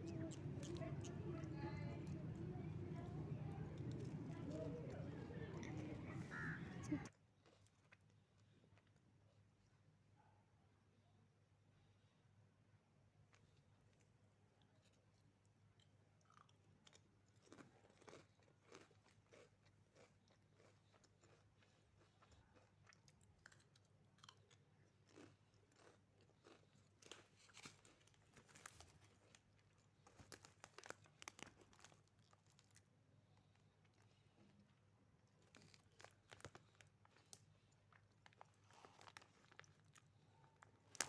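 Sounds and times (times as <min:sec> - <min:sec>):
faint low hum: 0:00.0 - 0:07.1
person chewing crunchy snack: 0:16.2 - 0:27.3.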